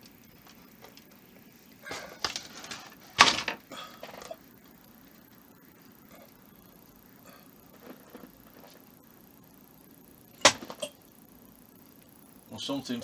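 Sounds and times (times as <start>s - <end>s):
object falling over with a knock: 10.4s - 10.9s.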